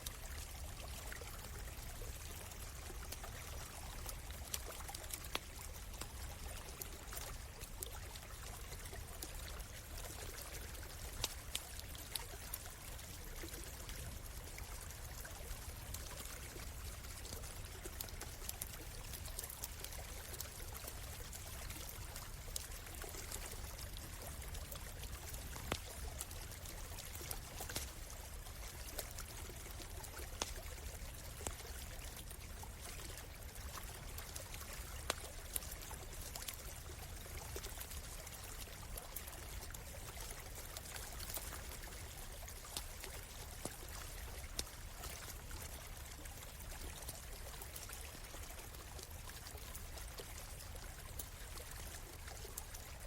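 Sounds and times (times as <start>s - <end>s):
small stream running: 0.0s - 53.0s
campfire crackling: 0.1s - 53.0s.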